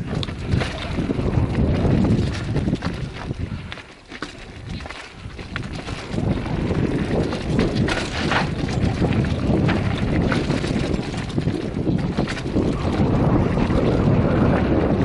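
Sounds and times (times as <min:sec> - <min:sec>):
bike knocks and rattles: 0:00.0 - 0:15.0
tyres rumbling over dirt: 0:00.0 - 0:15.0
wind buffeting microphone: 0:00.0 - 0:15.0.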